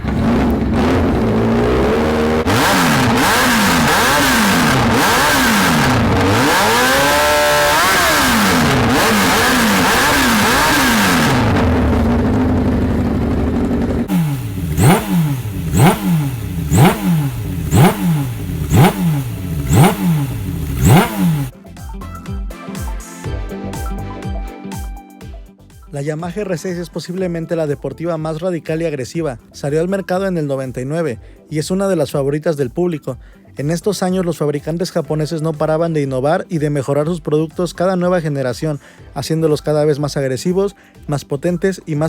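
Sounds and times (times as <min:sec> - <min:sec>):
motorcycle engine revving: 0:00.0 - 0:21.6.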